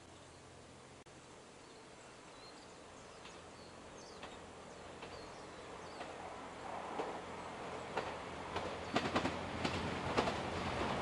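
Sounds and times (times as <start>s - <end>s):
approaching diesel train: 2.3s - 11.0s.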